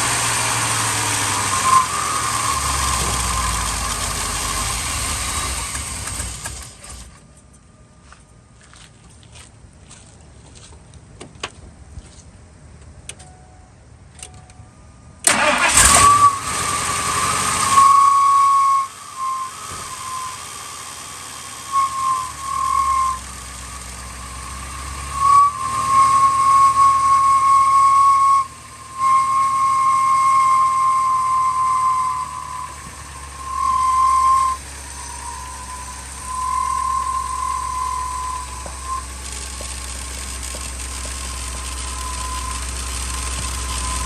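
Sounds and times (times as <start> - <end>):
loud high whistle: 0.0 - 6.6, 15.3 - 39.2, 41.3 - 44.0
truck engine running: 0.0 - 7.5, 15.2 - 44.0.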